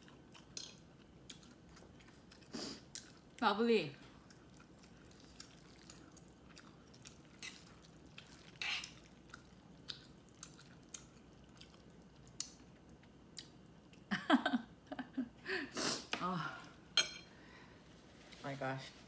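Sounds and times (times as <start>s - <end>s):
chewing noodles: 0.0s - 3.4s, 4.1s - 14.0s.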